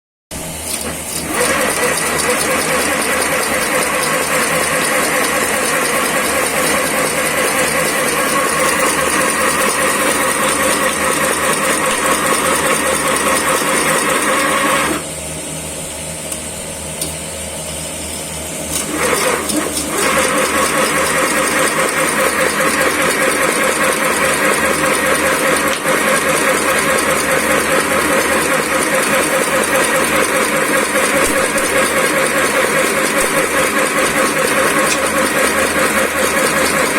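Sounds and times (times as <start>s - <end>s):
quiet machine hum: 0.4s - 20.6s
machine clattering: 0.7s - 14.4s.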